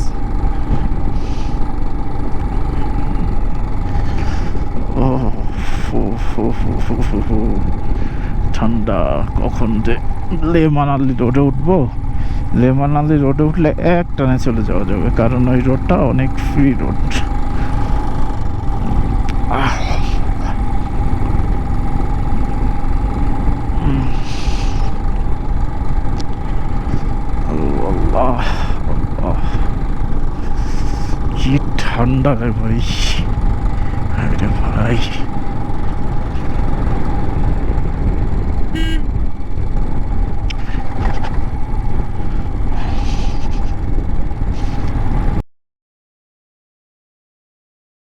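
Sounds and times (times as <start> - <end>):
motorcycle engine drone: 0.0 - 45.4
wind buffeting microphone: 35.3 - 45.4
horn beep: 38.7 - 39.2.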